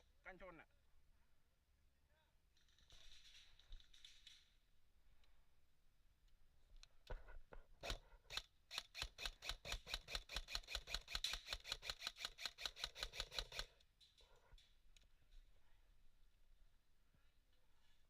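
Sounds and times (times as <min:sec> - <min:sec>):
airsoft gun rapid firing: 0:07.8 - 0:13.8.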